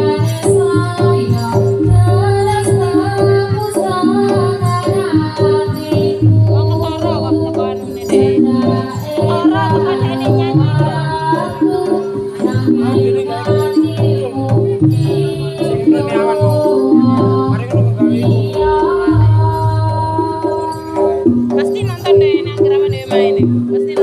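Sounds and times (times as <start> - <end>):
wavering melody line: 0.0 - 23.4
busy drumming: 0.0 - 24.0
person singing: 0.0 - 24.0
steadily held note: 18.6 - 20.8.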